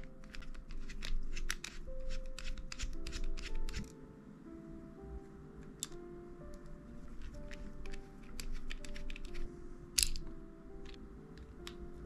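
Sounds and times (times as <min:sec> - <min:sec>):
screwdriver clicking on metal: 0:00.0 - 0:03.9, 0:07.2 - 0:09.4, 0:10.0 - 0:10.2
soft background music: 0:00.0 - 0:12.0.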